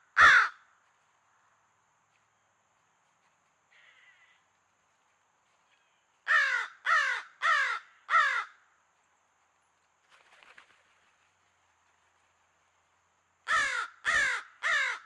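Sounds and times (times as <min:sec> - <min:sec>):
crow cawing: 0:00.1 - 0:00.7, 0:06.3 - 0:08.6, 0:13.5 - 0:15.0.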